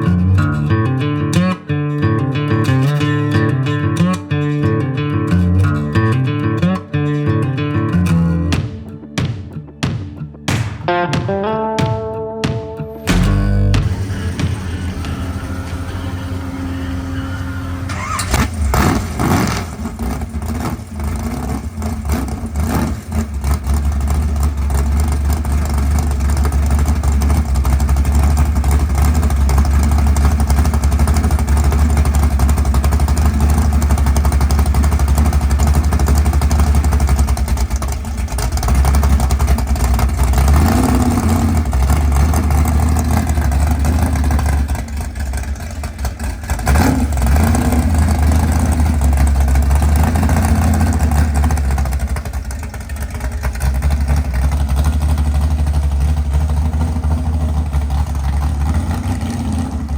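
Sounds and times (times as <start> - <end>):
engine throttle blips: 10.9 - 59.9
car engine idling loud and low: 13.0 - 59.9.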